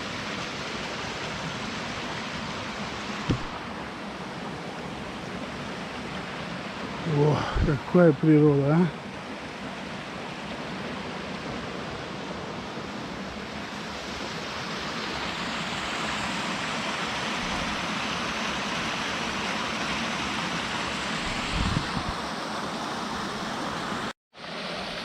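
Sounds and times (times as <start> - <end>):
stream water rushing over rocks: 0.0 - 25.0
low thump: 3.3 - 3.6.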